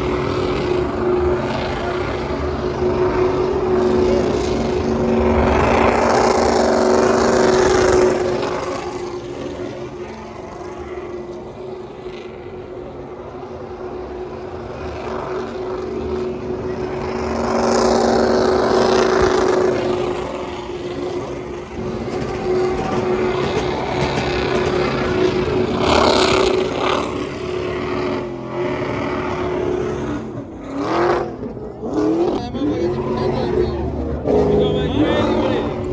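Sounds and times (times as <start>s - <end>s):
vehicle engine humming: 0.0s - 35.9s.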